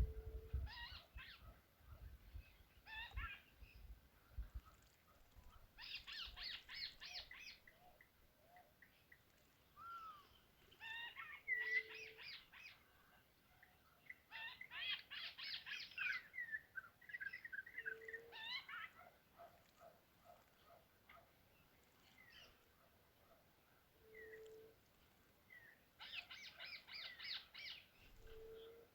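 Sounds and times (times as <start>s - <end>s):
birds chirping: 0.0s - 28.9s
whistled bird notes: 9.8s - 12.8s, 24.0s - 24.7s.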